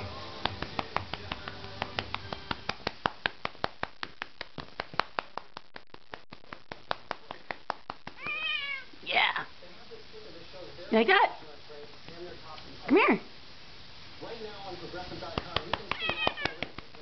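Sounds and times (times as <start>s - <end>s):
hand patting a cat: 0.4s - 5.5s, 15.4s - 17.0s.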